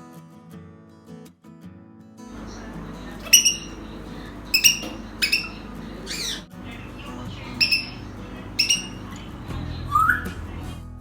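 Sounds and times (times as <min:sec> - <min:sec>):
parrot low rising call: 0:02.4 - 0:09.2
parrot whistled calls: 0:02.4 - 0:10.5.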